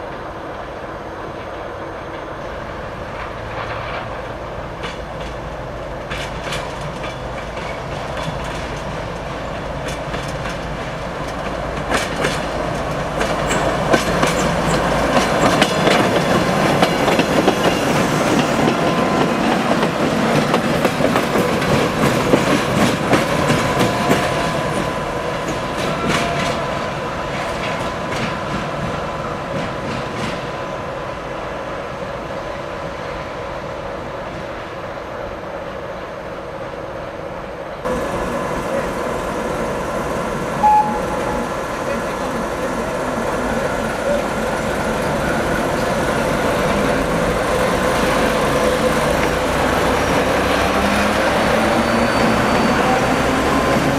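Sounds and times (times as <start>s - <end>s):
diesel locomotive engine hum: 0.0s - 53.9s
wheels clicking over rail joints: 4.8s - 24.8s.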